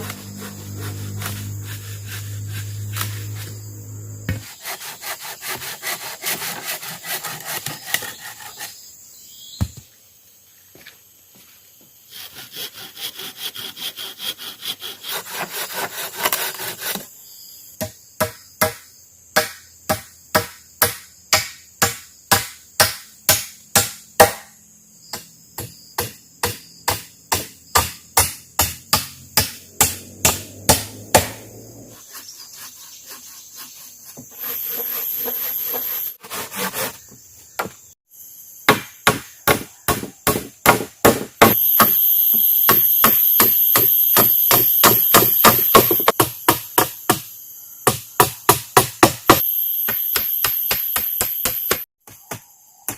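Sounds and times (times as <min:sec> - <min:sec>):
hand saw cutting wood: 0:00.0 - 0:03.7, 0:04.3 - 0:08.8, 0:12.1 - 0:17.1, 0:28.6 - 0:37.2, 0:42.7 - 0:46.2
sharp knocks on wood: 0:38.7 - 0:41.9, 0:42.7 - 0:47.3.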